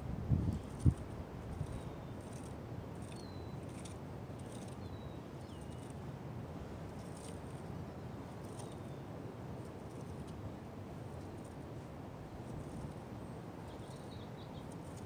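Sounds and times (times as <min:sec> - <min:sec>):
faint bird chirps: 0:03.0 - 0:03.8.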